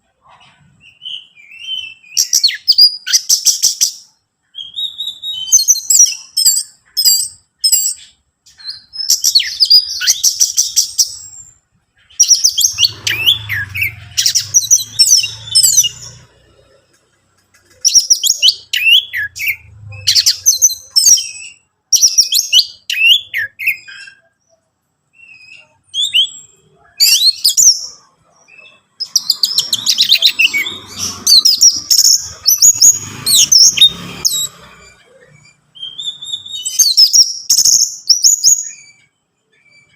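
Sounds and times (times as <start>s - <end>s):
thrush singing: 12.4s - 21.1s, 28.0s - 36.0s.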